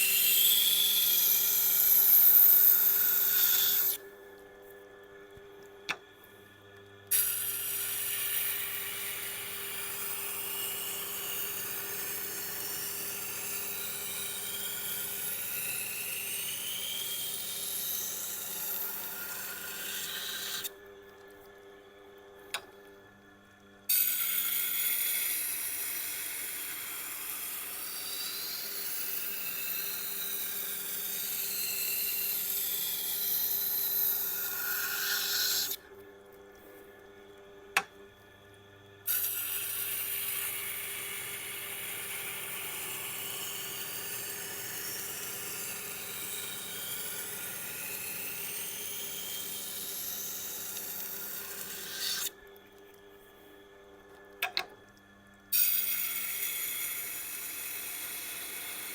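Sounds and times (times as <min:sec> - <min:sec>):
knife grinding on stone: 0:34.4 - 0:35.8, 0:51.6 - 0:52.3.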